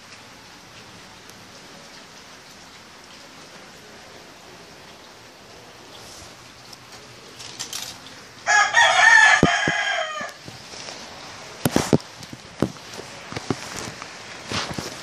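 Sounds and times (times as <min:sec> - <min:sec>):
steady hiss: 0:00.0 - 0:15.0
rooster crowing: 0:08.4 - 0:10.4.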